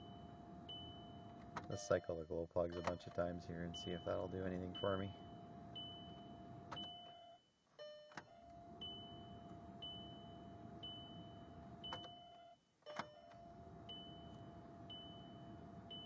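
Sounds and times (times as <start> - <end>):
steady electrical whine: 0.0 - 7.4, 8.1 - 16.0
ignition click: 11.6 - 12.2.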